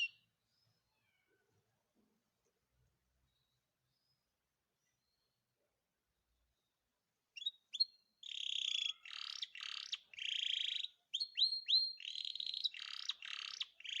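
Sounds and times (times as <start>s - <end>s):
canary singing: 0.0s - 0.2s, 7.4s - 14.0s.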